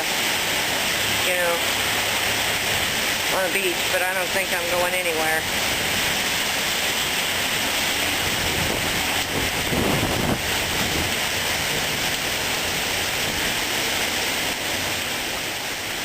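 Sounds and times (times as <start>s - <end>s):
heavy rain pouring: 0.0s - 16.0s
wind: 0.0s - 16.0s.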